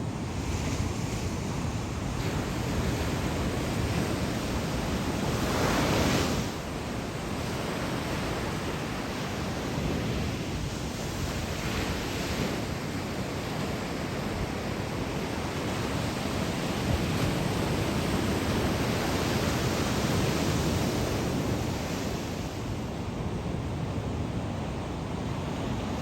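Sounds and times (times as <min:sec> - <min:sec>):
waves breaking on a beach: 0:00.0 - 0:26.0.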